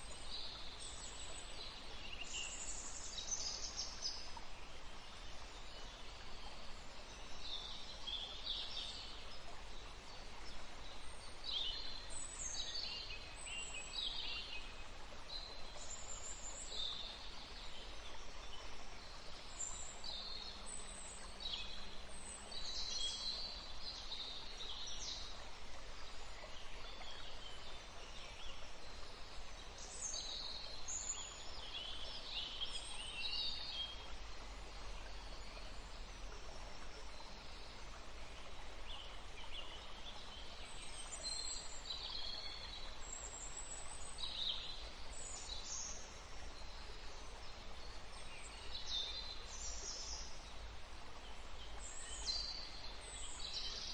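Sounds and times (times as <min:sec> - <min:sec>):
small river rushing: 0:00.0 - 0:53.9.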